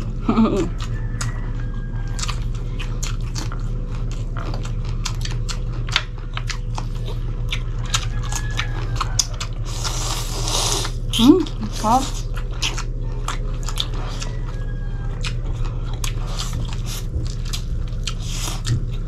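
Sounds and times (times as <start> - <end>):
people chewing: 0.0 - 19.0
steady low hum: 0.0 - 19.0.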